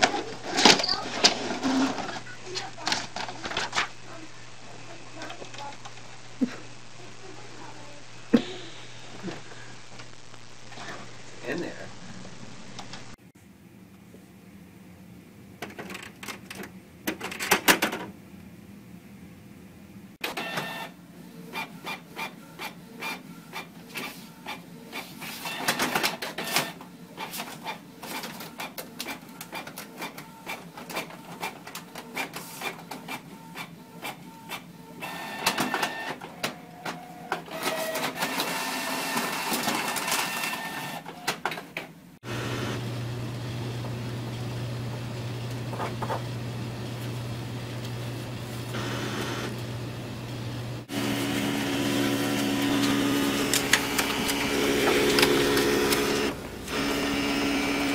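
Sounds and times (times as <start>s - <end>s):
printer clicking and whirring: 0.0s - 4.0s, 20.2s - 20.9s, 21.5s - 42.8s, 48.7s - 57.9s
steady low hum: 42.3s - 57.9s.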